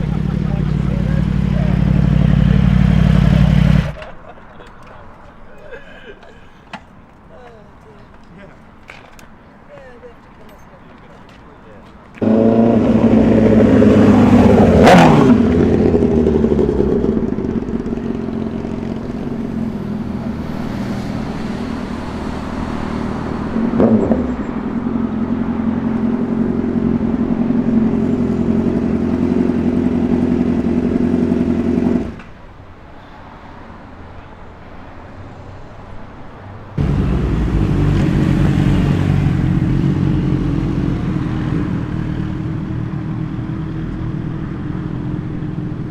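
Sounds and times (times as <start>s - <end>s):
motorcycle engine idling: 0.0s - 4.0s, 12.2s - 20.3s, 24.4s - 32.2s, 36.8s - 45.9s
quiet traffic: 0.0s - 45.9s
vehicle passing: 0.0s - 45.9s.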